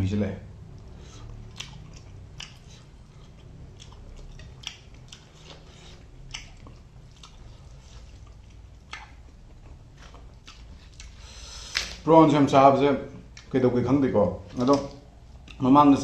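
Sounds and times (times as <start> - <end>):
chewing and biting food: 0.8 - 12.0
wet mouth clicks: 1.3 - 2.9.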